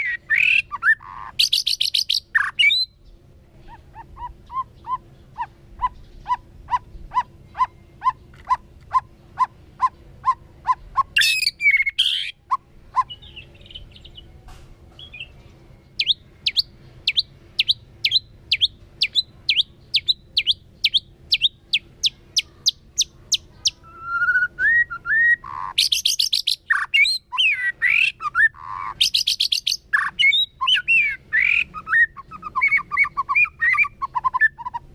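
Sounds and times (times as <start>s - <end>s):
bird singing whistled notes and trills: 0.0s - 34.9s.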